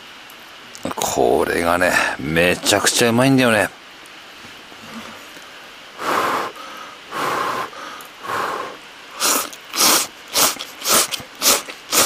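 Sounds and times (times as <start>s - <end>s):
person slurping noodles: 8.3s - 12.0s.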